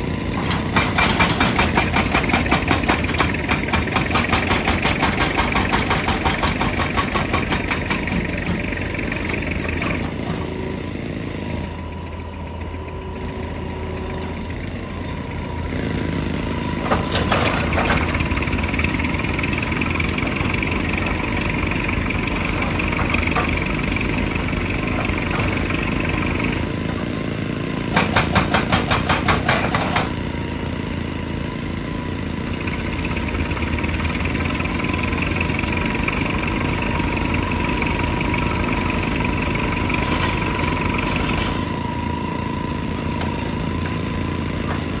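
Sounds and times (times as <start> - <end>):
excavator diesel engine: 0.0 - 45.0
rapid hammering blows: 0.5 - 10.2, 27.9 - 30.2.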